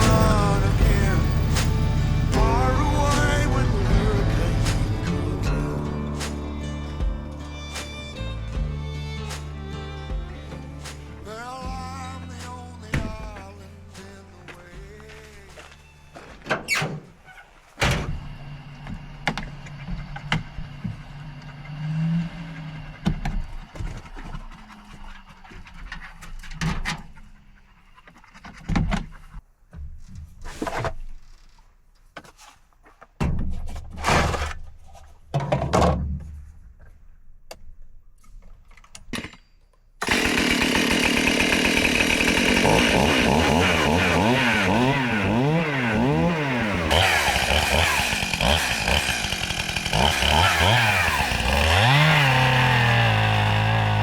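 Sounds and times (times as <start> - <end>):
chainsaw running: 0.0 - 13.5, 18.4 - 25.8, 40.0 - 54.0
knocks and clunks: 0.0 - 13.6, 17.8 - 21.2, 28.1 - 31.1, 33.0 - 49.8.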